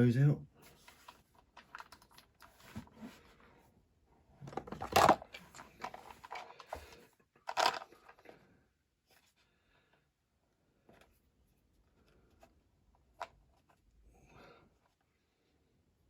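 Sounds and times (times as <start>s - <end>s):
scraping and crunching of diecast model: 4.4s - 8.3s.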